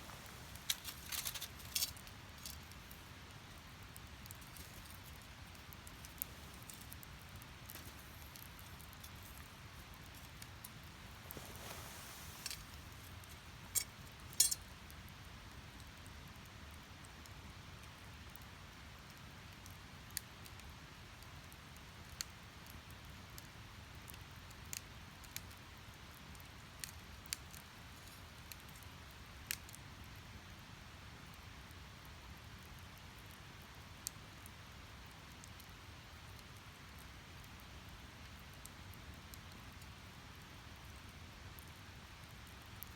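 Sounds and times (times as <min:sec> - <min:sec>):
logs crackling and popping: 0:00.0 - 0:16.5, 0:17.2 - 0:30.2
rush of flame: 0:11.1 - 0:13.9.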